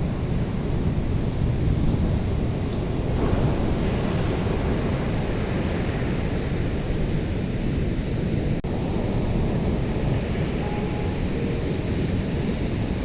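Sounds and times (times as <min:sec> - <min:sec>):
ocean waves rushing: 0:01.7 - 0:13.0.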